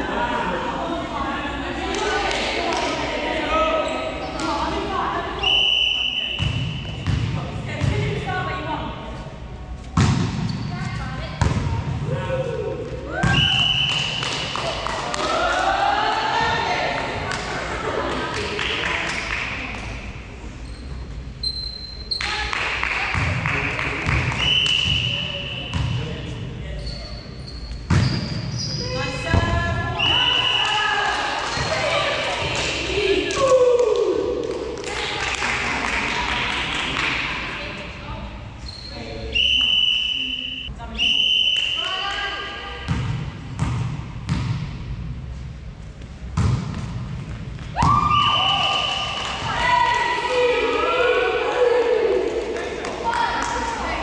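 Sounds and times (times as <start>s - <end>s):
volleyball hits echoing: 9.9s - 10.5s, 11.4s - 12.0s, 42.9s - 44.9s, 46.3s - 49.8s.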